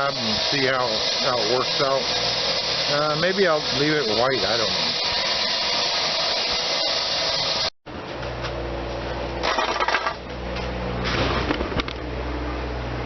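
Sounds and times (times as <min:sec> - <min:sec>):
concrete saw running: 0:00.0 - 0:07.7.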